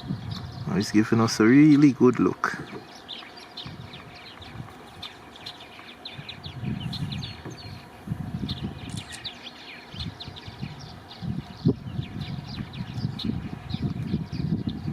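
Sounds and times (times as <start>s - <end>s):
songbirds chirping and singing: 0.0s - 14.9s.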